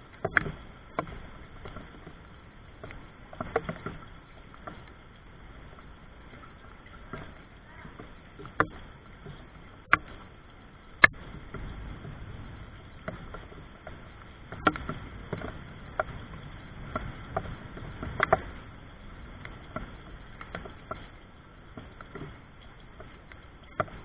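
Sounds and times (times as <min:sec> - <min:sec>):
soft low wash: 0:00.0 - 0:24.0
raindrops tapping: 0:05.6 - 0:24.0.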